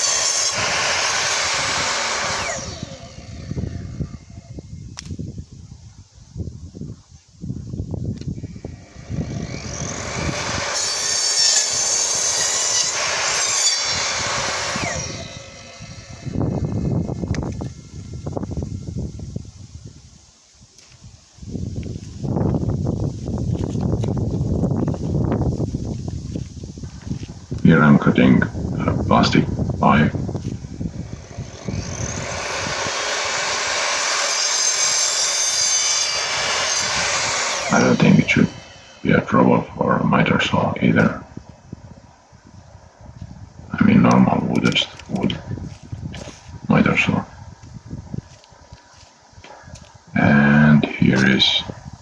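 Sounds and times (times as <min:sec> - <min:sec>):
mitre saw whining and cutting: 0:00.0 - 0:05.2, 0:08.3 - 0:20.1, 0:23.2 - 0:42.6.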